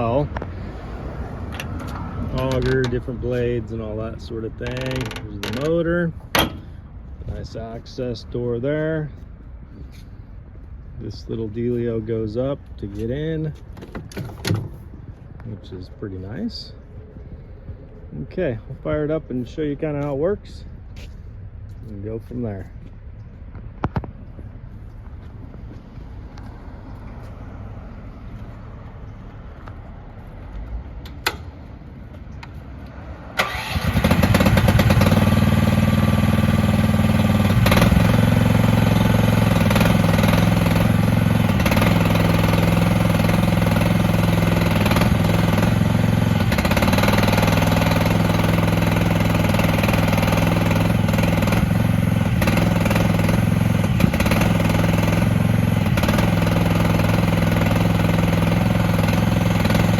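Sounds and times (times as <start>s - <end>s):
excavator engine starting and idling: 0.0s - 8.1s, 30.9s - 59.9s.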